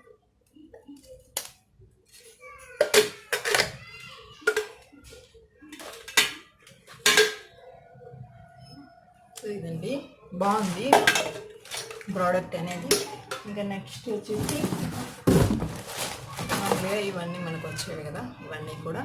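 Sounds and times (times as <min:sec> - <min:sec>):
steel jars clanking together: 0:10.6 - 0:13.6.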